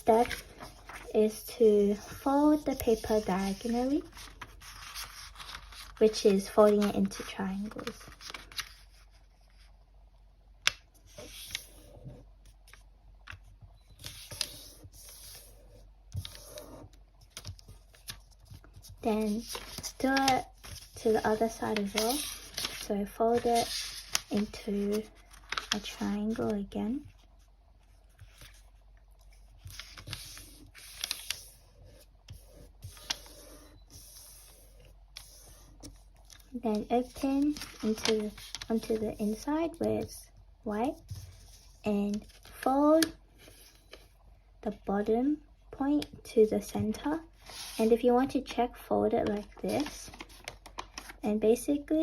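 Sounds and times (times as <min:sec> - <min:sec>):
paper rustling: 0:00.0 - 0:09.7, 0:11.0 - 0:27.4, 0:28.0 - 0:40.1, 0:40.8 - 0:44.0, 0:46.9 - 0:47.8, 0:49.2 - 0:51.2
paper clicks and taps: 0:17.3 - 0:20.9.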